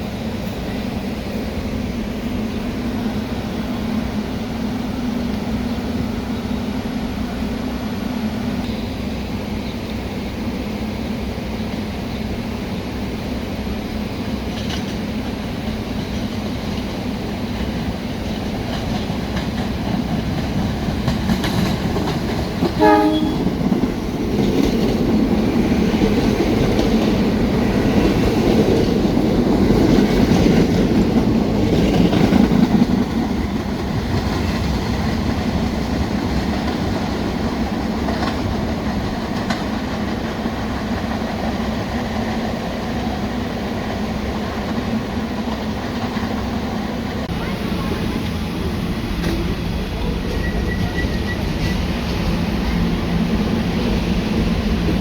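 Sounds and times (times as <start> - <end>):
train wheels rumbling on rails: 0.0 - 55.0
train horn blast: 22.7 - 23.7.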